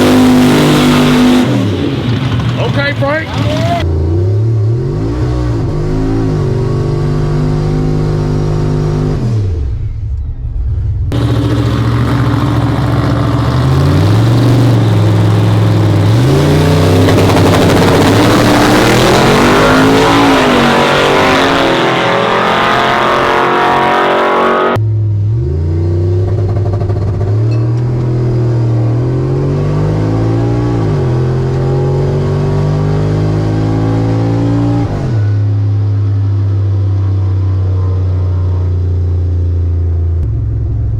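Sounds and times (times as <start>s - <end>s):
loud rushing noise: 0.0s - 3.8s, 9.4s - 15.9s
truck engine accelerating hard: 0.0s - 40.9s.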